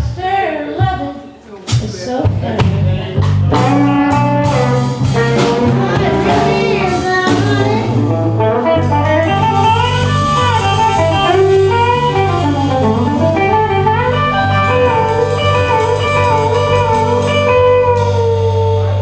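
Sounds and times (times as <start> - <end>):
lead guitar bending notes: 3.3 - 19.0
low bass note: 4.4 - 10.5.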